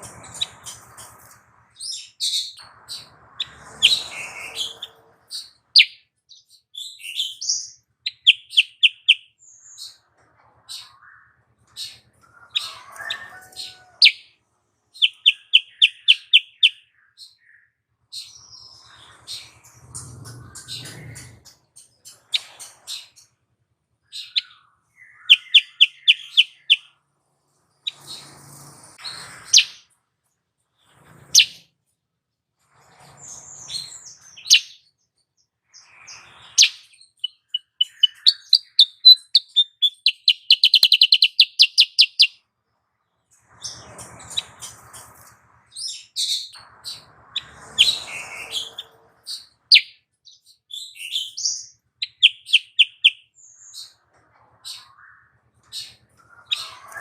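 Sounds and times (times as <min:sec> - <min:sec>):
bird chirping and trilling: 0:00.0 - 0:10.0, 0:10.6 - 0:14.4, 0:15.0 - 0:23.3, 0:24.1 - 0:27.0, 0:27.8 - 0:29.9, 0:30.9 - 0:31.7, 0:33.3 - 0:35.0, 0:35.8 - 0:42.4, 0:45.7 - 0:54.0, 0:54.6 - 0:57.0.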